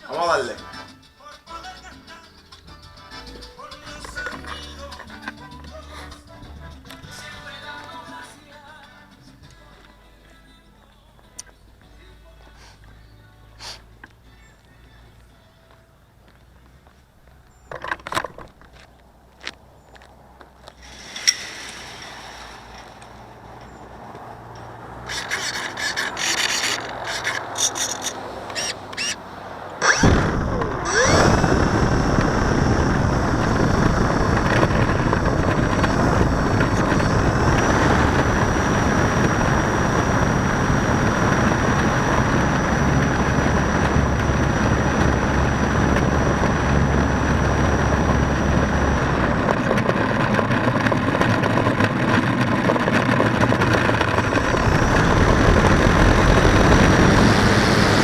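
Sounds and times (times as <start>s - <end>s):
handling clicks and knocks: 17.6s - 20.6s
propeller air rush: 24.9s - 58.0s
electric motor whine: 29.8s - 51.9s, 53.4s - 58.0s.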